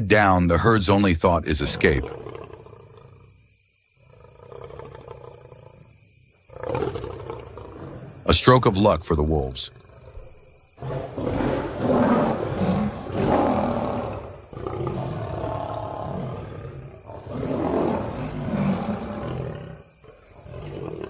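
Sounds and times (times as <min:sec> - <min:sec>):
animal growls and roars: 0:01.4 - 0:03.4, 0:04.0 - 0:05.9, 0:06.5 - 0:08.3, 0:09.7 - 0:21.0.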